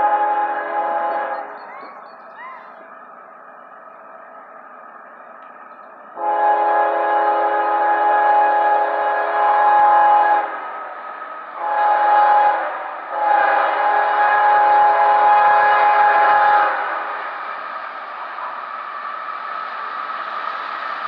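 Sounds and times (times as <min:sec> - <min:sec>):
locomotive air horn blowing: 0:00.0 - 0:01.4, 0:06.2 - 0:10.6, 0:11.6 - 0:17.0
rumble of passing train: 0:00.0 - 0:21.0.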